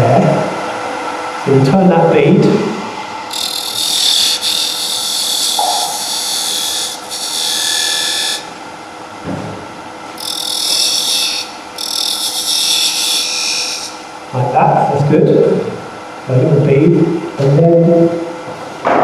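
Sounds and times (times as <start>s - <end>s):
lathe humming: 0.5s - 16.2s
lathe tool cutting wood hiss: 3.3s - 8.6s, 10.2s - 14.2s.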